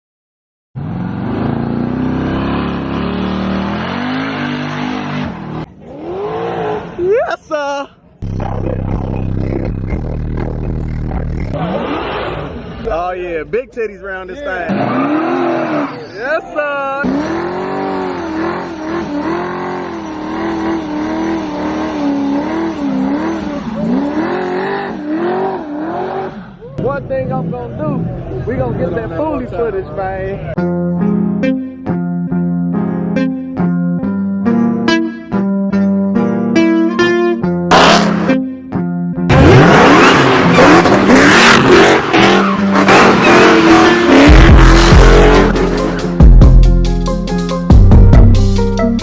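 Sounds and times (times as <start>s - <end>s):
car engine revving hard: 0.8s - 7.0s, 11.5s - 12.9s, 14.6s - 16.1s, 17.0s - 26.6s, 37.7s - 38.4s, 39.3s - 46.4s
spinning tires hissing: 17.0s - 26.6s, 39.3s - 46.2s.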